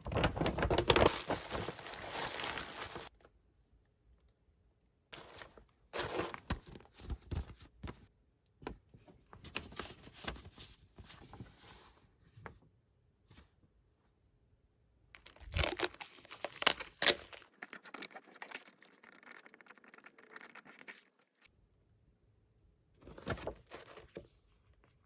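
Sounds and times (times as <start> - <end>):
packaging being torn and crinkled: 0.2 - 3.1, 15.2 - 21.1.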